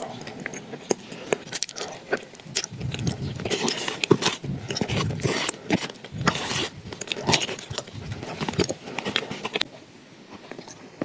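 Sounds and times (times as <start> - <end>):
mouth clicks: 0.0 - 9.6
wet chewing: 0.0 - 9.7
spoon scraping plastic tub: 2.8 - 9.6.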